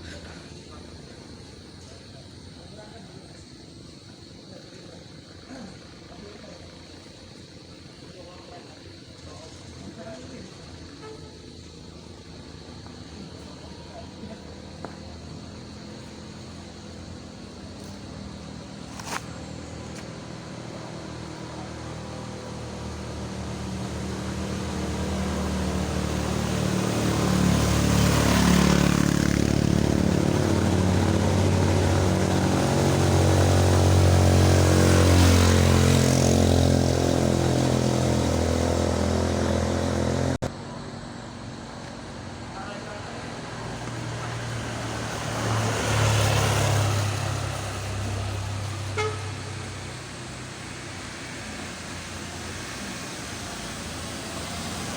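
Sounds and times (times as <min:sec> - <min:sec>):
vehicle engine climbing hill: 0:11.5 - 0:54.9.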